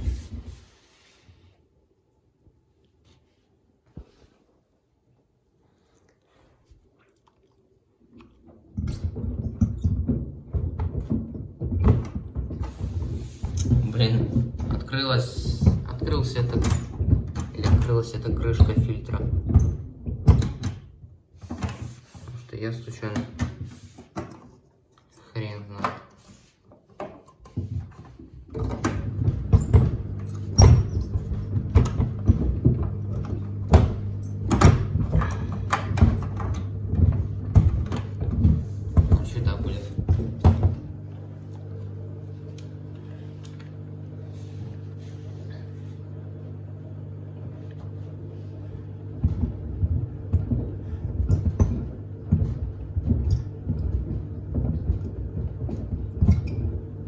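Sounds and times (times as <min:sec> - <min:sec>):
sneakers tumbling in washer drum: 0:08.5 - 0:24.2, 0:27.5 - 0:46.1, 0:47.0 - 0:57.0.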